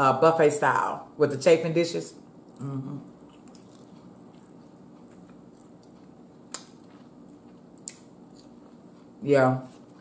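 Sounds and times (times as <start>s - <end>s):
quiet chewing: 2.2s - 10.0s.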